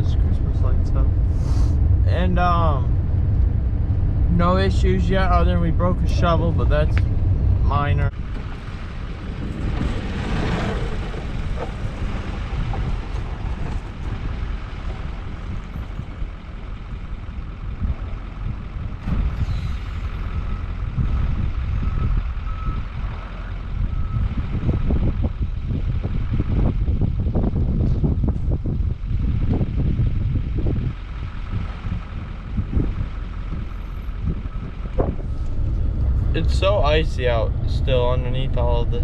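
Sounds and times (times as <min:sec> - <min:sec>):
truck engine running: 0:00.0 - 0:39.0
reversing alarm beeping: 0:20.2 - 0:24.4.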